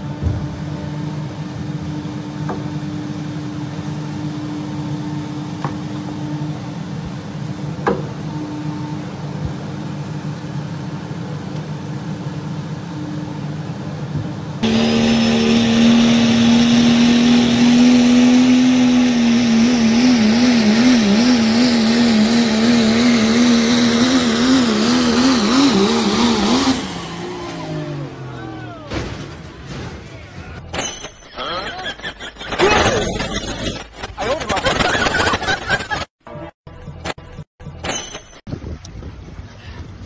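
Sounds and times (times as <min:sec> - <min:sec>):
vehicle road and engine noise: 0:00.0 - 0:32.0, 0:35.7 - 0:40.0
loud sustained wavering tone: 0:14.6 - 0:22.1.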